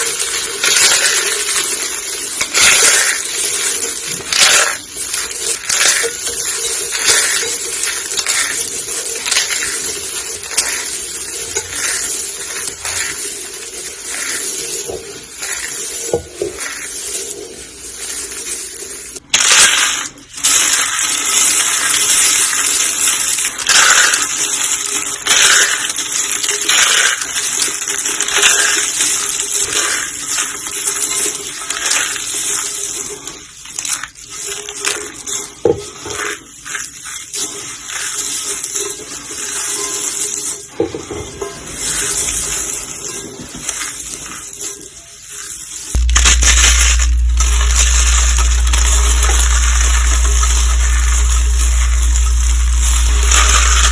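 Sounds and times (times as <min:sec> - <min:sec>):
soap crunching and crackling: 0:45.9 - 0:53.9.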